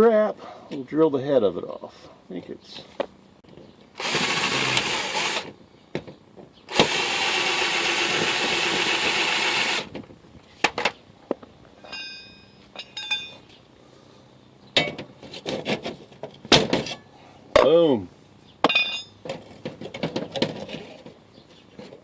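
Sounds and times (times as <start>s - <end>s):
electric drill boring steel: 4.0s - 5.5s, 6.7s - 9.9s
light metallic clicks and clinks: 11.8s - 13.6s.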